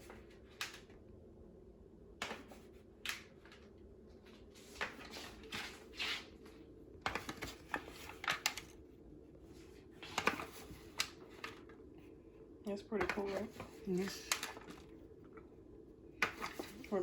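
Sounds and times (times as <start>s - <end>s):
faint steady hum: 0.0s - 17.0s
food rustles and scrapes: 4.5s - 8.8s.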